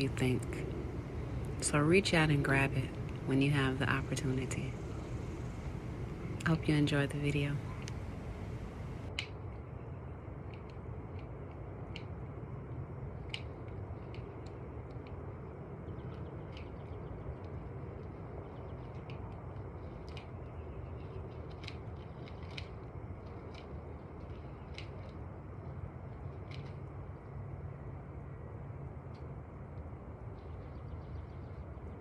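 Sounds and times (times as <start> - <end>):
low hum: 0.0 - 9.1.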